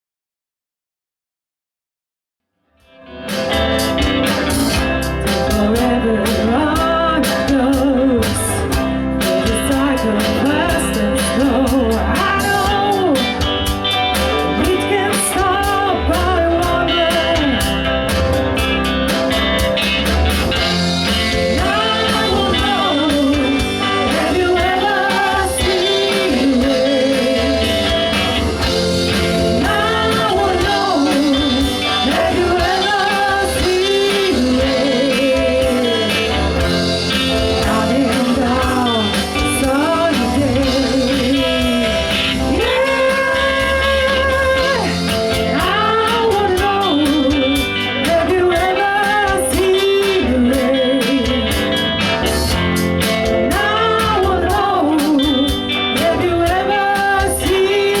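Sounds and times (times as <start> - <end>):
electric guitar: 2.7 - 58.0
bass guitar: 2.8 - 58.0
drums: 2.8 - 58.0
person singing lead vocals: 4.5 - 18.1, 20.6 - 58.0.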